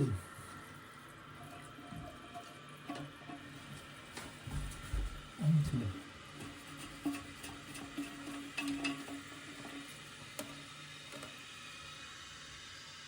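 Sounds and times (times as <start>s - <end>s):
toilet tank filling with hiss: 0.0s - 13.0s.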